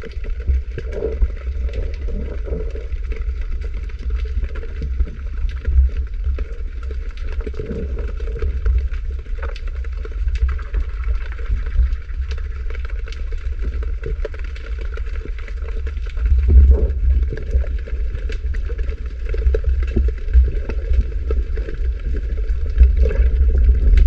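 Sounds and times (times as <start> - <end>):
small clicks and crackles: 0.0 - 24.0
underwater low rumble: 0.0 - 24.0.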